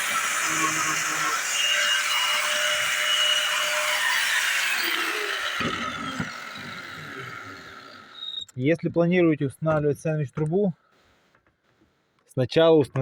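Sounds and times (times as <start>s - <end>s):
power tool cutting into wall: 0.0s - 8.6s.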